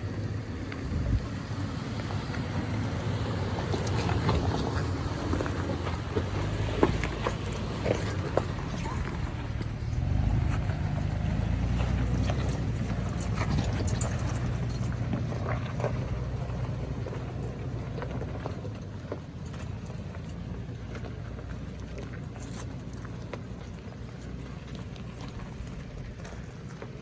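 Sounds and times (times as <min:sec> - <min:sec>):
engine running at low speed: 0:00.0 - 0:27.0
tyres crunching over stones: 0:00.3 - 0:27.0.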